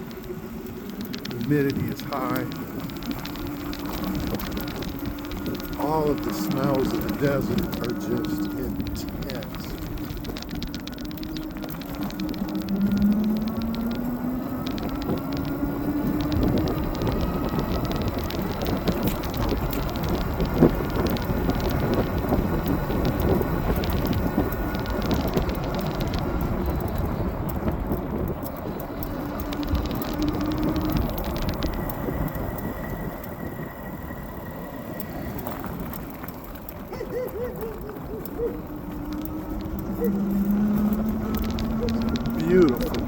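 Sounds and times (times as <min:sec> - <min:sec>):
electric motor whine: 0:00.0 - 0:43.0
tyre noise on wet road: 0:00.0 - 0:43.0
wind rush: 0:41.2 - 0:43.0.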